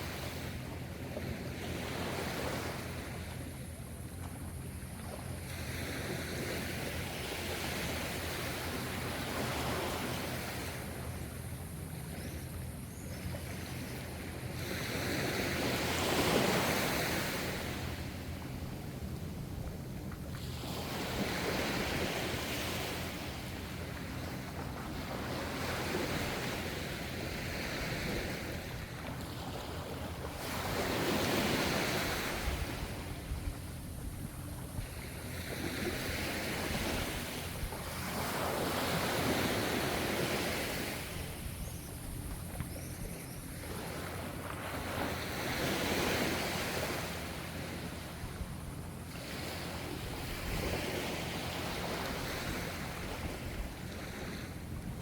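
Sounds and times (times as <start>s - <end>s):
ocean waves washing in: 0.0s - 4.1s.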